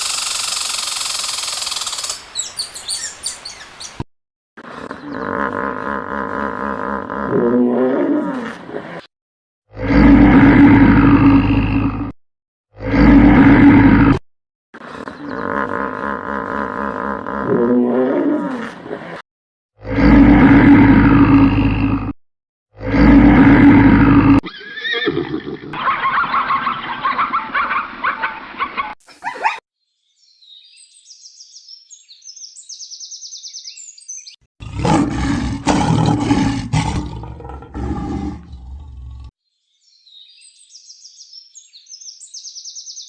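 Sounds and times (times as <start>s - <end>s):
low roaring animal calls: 34.6s - 39.3s.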